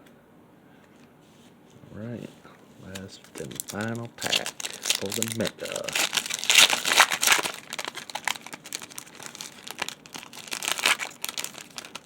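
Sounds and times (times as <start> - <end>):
plastic wrapper crinkling: 2.9 - 12.0
plastic wrapper ripping: 3.0 - 12.0.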